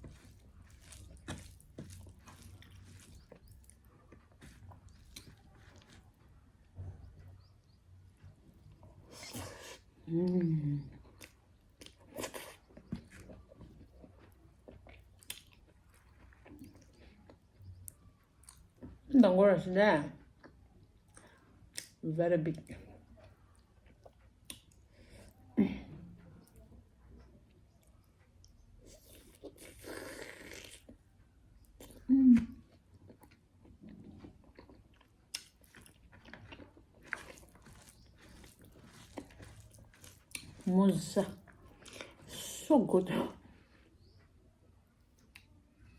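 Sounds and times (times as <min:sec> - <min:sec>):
person chewing and crunching food: 0:00.0 - 0:19.1, 0:22.8 - 0:25.5, 0:26.4 - 0:42.7.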